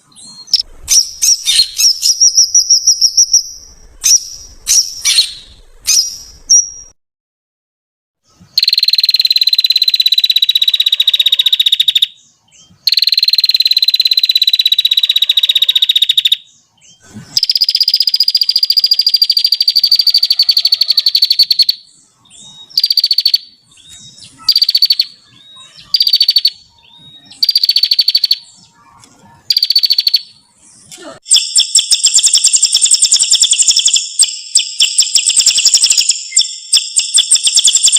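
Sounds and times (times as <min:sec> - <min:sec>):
songbird high trills: 0:31.3 - 0:37.9.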